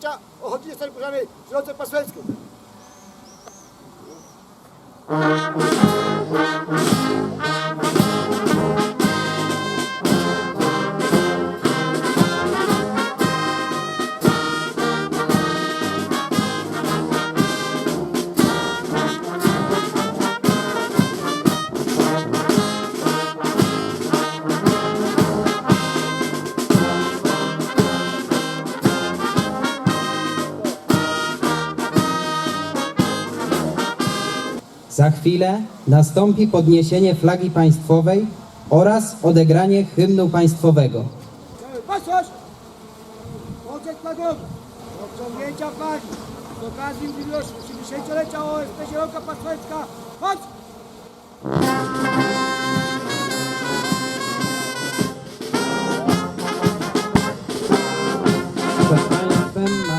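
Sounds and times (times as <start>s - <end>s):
brass band playing: 5.0s - 34.7s, 41.9s - 59.9s.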